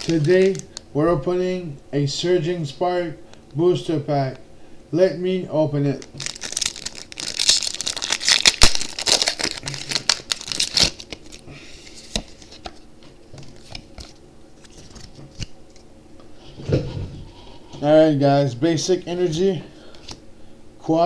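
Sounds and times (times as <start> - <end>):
foil wrapper crinkling and tearing: 0.0 - 0.8, 5.9 - 11.5.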